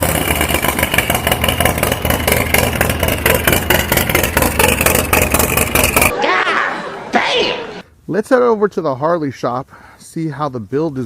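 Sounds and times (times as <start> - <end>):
motorcycle engine running loud: 0.0 - 6.1.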